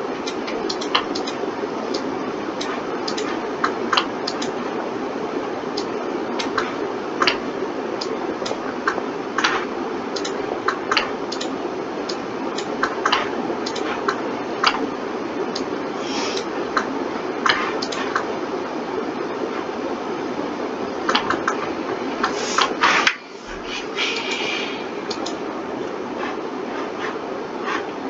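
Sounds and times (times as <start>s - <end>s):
steady background hum: 0.0s - 28.0s
mouse and keyboard clicks: 8.5s - 11.5s, 12.6s - 14.8s.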